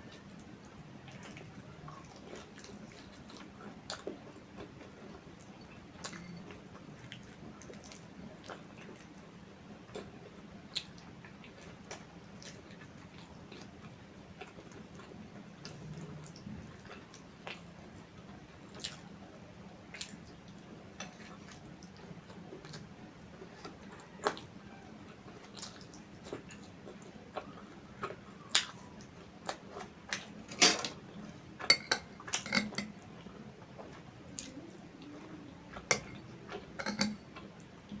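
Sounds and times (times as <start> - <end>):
faint low hum: 0.0 - 38.0
chewing and mouth smacks: 1.1 - 9.1, 18.7 - 19.1.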